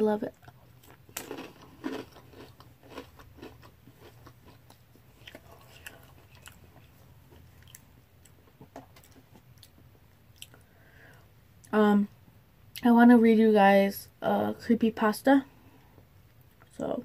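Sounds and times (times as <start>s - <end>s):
person chewing crunchy cereal: 0.3s - 10.6s.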